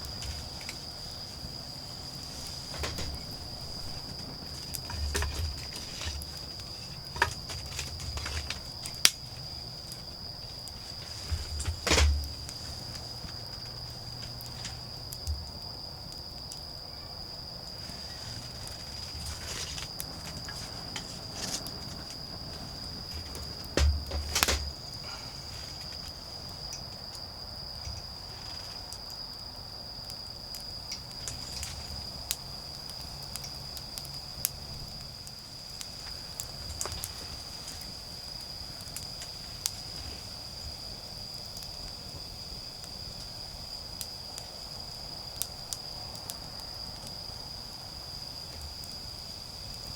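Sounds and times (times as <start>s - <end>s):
knocks and rustles: 0.0s - 9.4s, 10.8s - 15.4s, 17.8s - 26.2s
insects chirping: 0.0s - 49.9s
wood fire crackling: 0.0s - 49.9s.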